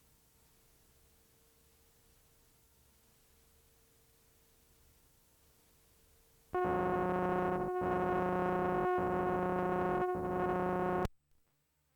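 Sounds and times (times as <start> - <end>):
electronic moaning drone: 6.6 - 11.1.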